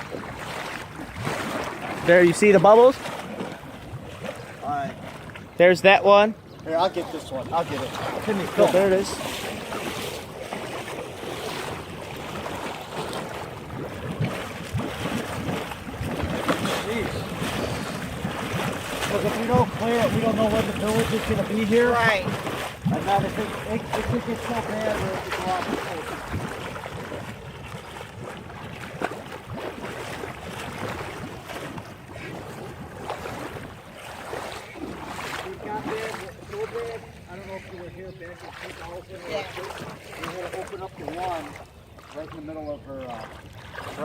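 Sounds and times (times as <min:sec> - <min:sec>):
floodwater rushing: 0:00.0 - 0:44.0
water sloshing and splashing: 0:00.0 - 0:44.0
wind noise on microphone: 0:09.2 - 0:36.2.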